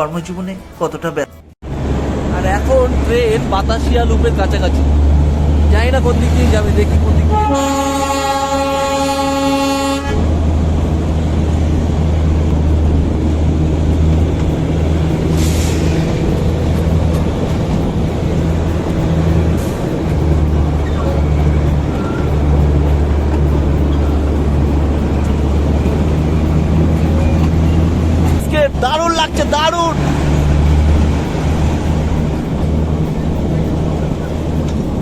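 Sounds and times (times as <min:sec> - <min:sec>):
train engine rumble: 0:00.0 - 0:35.0
locomotive horn: 0:07.2 - 0:10.5
brief air hisses: 0:15.3 - 0:16.2.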